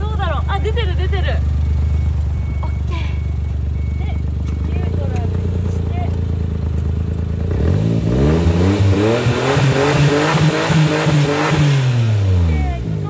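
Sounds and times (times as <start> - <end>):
car engine revving: 3.8 - 13.0.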